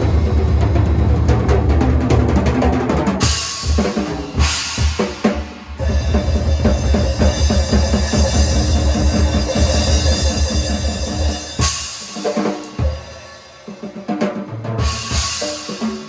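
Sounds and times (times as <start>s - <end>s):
bass drum: 0.0s - 11.9s
fast drum hits: 0.0s - 16.0s
cymbal crashes: 3.2s - 13.7s, 14.8s - 16.0s.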